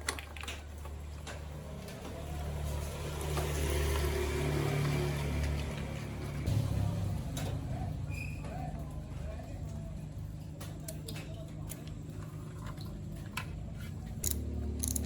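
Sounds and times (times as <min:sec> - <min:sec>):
low engine drone: 0:04.3 - 0:08.1.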